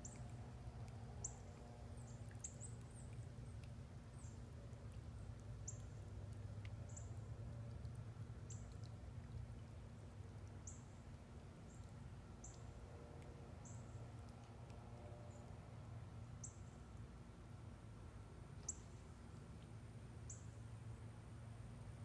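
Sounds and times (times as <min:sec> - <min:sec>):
faint low hum: 0:00.0 - 0:22.0
small bird chirping: 0:18.6 - 0:19.0.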